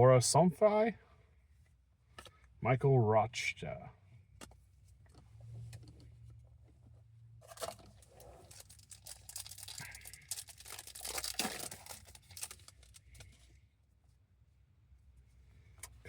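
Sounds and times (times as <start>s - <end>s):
foil wrapper tearing and crinkling: 8.4s - 13.0s.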